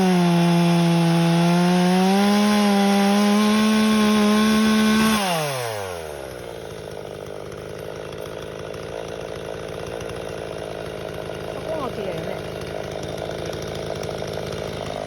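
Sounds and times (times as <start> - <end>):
chainsaw revving and idling: 0.0 - 15.0.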